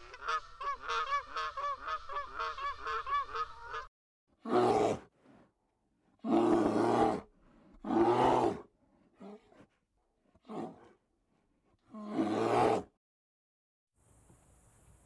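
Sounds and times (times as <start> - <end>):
honking bird calls: 0.0 - 3.9
hoarse animal roaring: 6.2 - 9.6, 10.4 - 10.9, 11.9 - 12.9.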